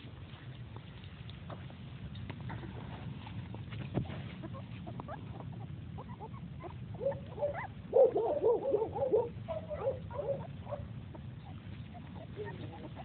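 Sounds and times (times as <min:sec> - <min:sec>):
puppies squeaking and whimpering: 0:03.5 - 0:08.2, 0:09.5 - 0:13.0.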